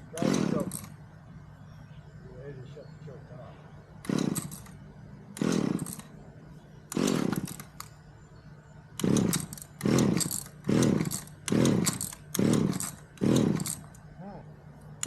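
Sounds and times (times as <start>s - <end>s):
chainsaw engine revving: 0.0s - 0.9s, 4.0s - 6.1s, 6.9s - 7.9s, 9.0s - 14.0s.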